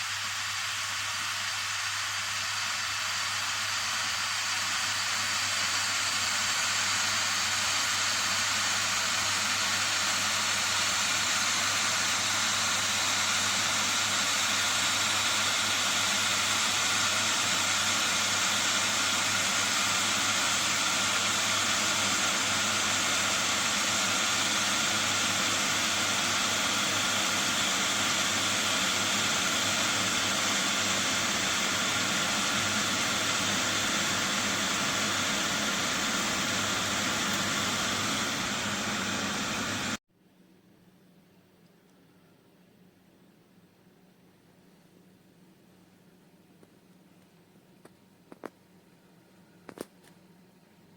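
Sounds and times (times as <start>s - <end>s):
electric kettle heating water: 0.0s - 40.0s.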